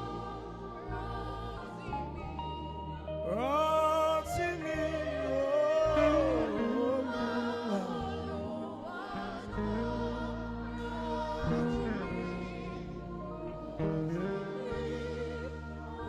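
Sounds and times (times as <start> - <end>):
saxophone melody: 0.0 - 16.0.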